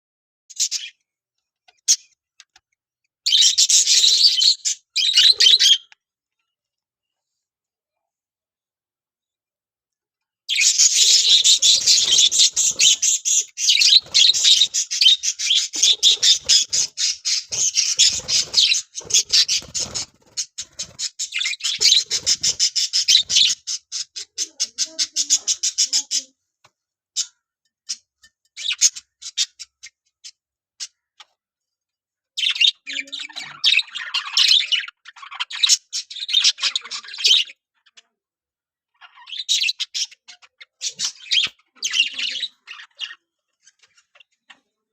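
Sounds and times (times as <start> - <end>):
parrots squawking: 3.3 - 6.0, 10.5 - 26.4, 38.9 - 44.5.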